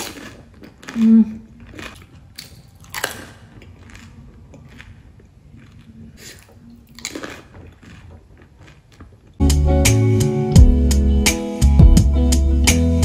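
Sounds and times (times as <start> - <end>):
person chewing crisp food: 0.0 - 9.4.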